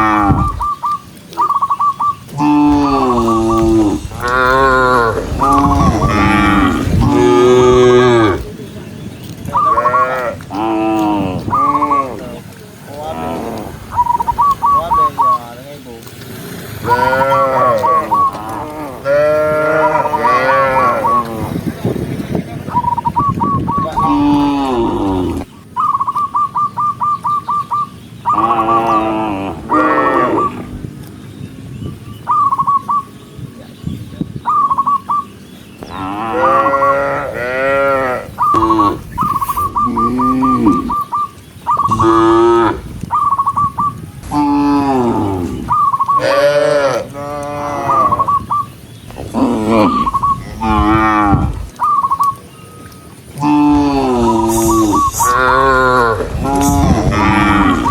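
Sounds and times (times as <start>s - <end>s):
cattle mooing: 0.0s - 0.5s, 2.3s - 8.5s, 16.8s - 21.5s, 28.3s - 30.7s, 35.9s - 41.0s, 41.9s - 43.0s, 44.2s - 48.2s, 49.2s - 51.7s, 53.4s - 57.9s
sharp bird notes: 0.0s - 12.2s, 13.0s - 15.6s, 31.8s - 46.4s, 47.6s - 57.9s.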